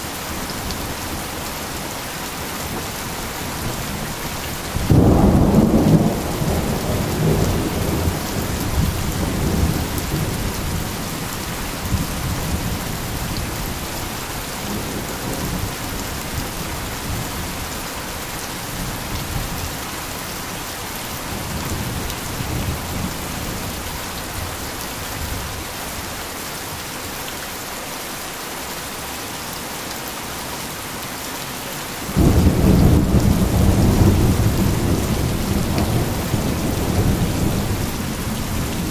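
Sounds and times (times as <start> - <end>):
heavy rain: 0.0 - 38.9
thunder rumbling: 32.1 - 38.9.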